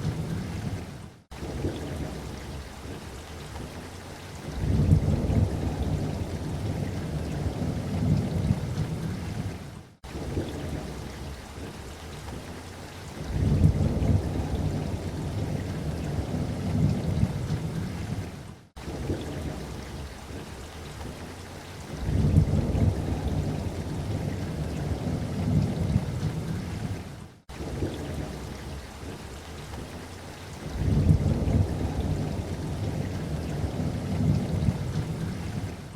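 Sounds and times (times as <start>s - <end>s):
steady rain: 0.0s - 35.9s
rolling thunder: 4.6s - 9.6s, 13.2s - 20.0s, 22.0s - 29.1s, 30.6s - 35.9s.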